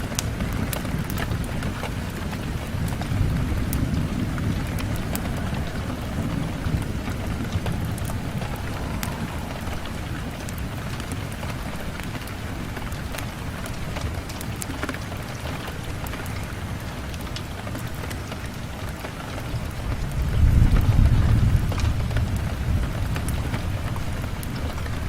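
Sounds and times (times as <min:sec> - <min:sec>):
rain on a window: 0:00.0 - 0:25.0
sharp ticks of raindrops: 0:00.0 - 0:25.0
deep low rumble: 0:01.4 - 0:12.2.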